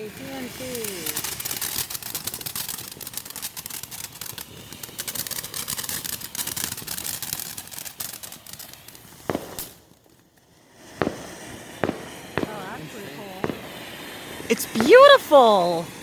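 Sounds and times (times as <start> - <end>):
crackling firework pops: 0.0 - 15.3.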